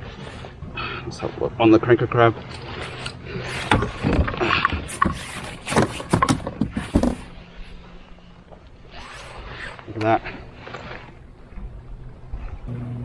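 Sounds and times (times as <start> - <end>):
knocks and clatter on plastic kayak: 3.8 - 7.4.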